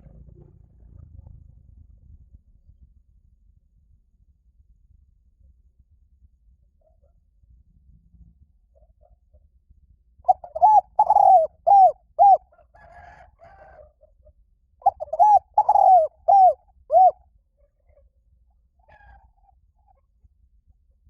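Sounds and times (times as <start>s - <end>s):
dove cooing: 10.3s - 13.9s, 14.8s - 17.2s.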